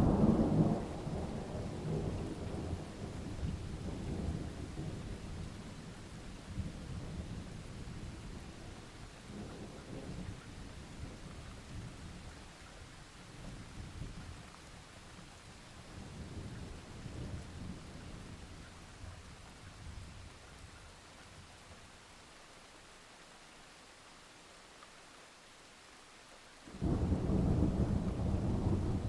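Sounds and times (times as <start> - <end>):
rolling thunder: 0.0 - 5.0, 26.7 - 29.0.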